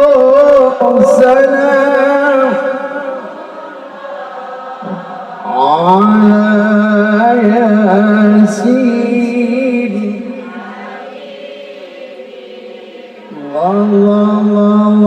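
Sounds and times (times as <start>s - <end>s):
man singing unaccompanied: 0.0s - 3.3s, 4.8s - 10.5s, 13.3s - 15.0s.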